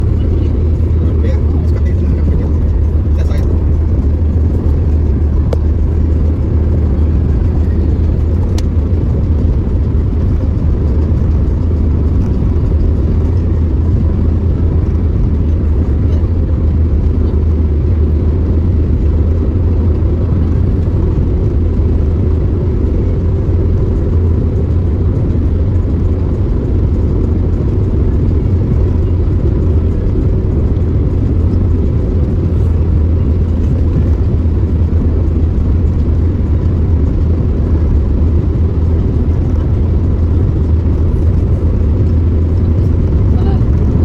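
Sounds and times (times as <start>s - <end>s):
car driving rumble from inside: 0.0s - 44.0s.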